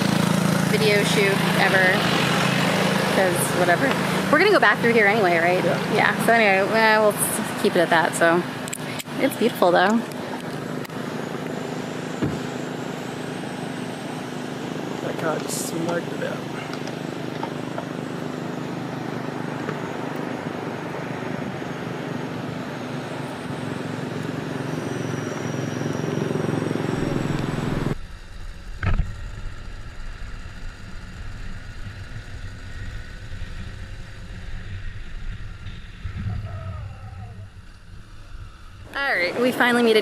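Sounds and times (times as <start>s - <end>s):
motorbike engine: 0.0s - 40.0s
rushing wind: 18.7s - 40.0s
low rumble: 27.0s - 40.0s.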